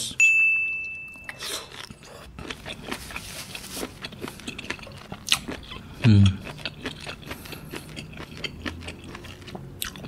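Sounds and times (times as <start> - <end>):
person chewing with wet clicks: 0.6 - 10.0.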